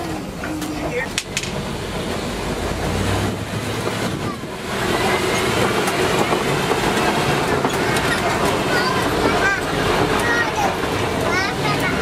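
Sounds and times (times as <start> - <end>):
truck engine and road rumble: 0.0 - 12.0.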